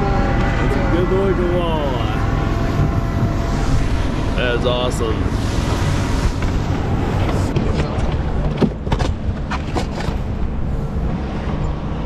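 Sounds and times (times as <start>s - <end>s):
boat motor rumbling: 0.0s - 12.0s
wind on microphone: 1.9s - 8.5s.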